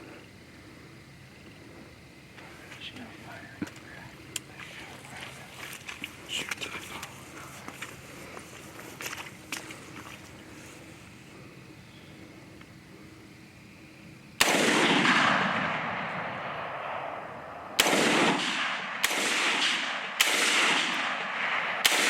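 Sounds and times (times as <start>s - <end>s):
rifle shots with rolling echo: 14.4s - 22.0s.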